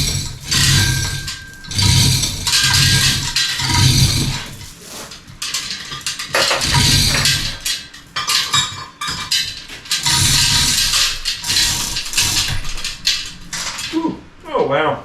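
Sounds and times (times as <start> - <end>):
metal tools clattering: 0.0 - 14.0.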